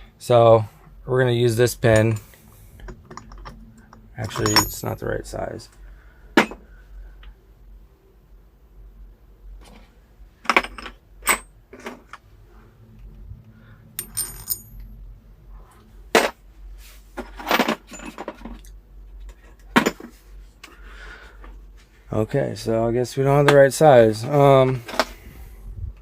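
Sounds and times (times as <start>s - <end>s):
metal pins clinking: 2.8s - 5.3s, 14.0s - 14.9s.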